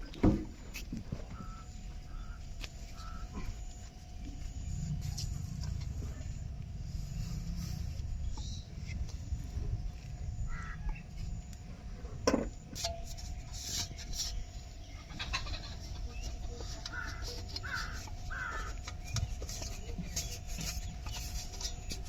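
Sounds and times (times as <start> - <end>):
steady low rumble: 0.0 - 22.0
short bird calls: 1.3 - 3.7.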